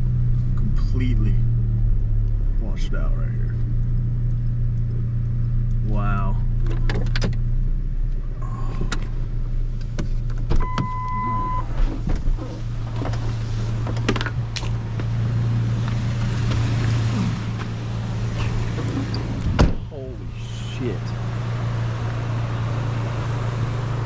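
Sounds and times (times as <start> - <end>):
engine and road drone: 0.0 - 24.0
electronic beep: 10.6 - 11.7.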